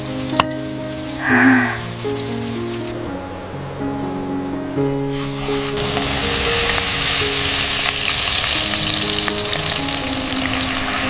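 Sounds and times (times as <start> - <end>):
soft sustained music notes: 0.0 - 11.0
food sizzling in a frying pan: 5.0 - 11.0.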